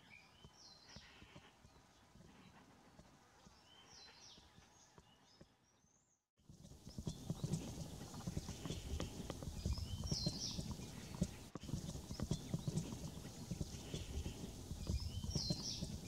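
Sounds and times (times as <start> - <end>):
low knocking and rumbling: 6.6 - 16.0.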